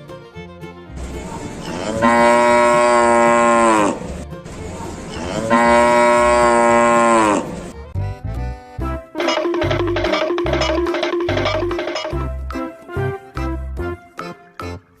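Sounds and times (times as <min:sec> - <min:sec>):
cow mooing: 0:01.6 - 0:04.2, 0:05.1 - 0:07.6.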